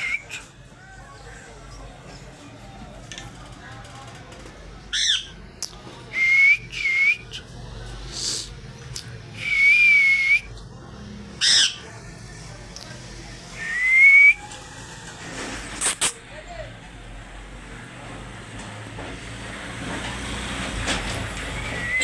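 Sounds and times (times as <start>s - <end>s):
parrot whistling: 0.0s - 0.4s, 6.2s - 7.5s, 9.4s - 10.5s, 11.4s - 11.8s, 13.6s - 14.5s, 21.6s - 22.0s.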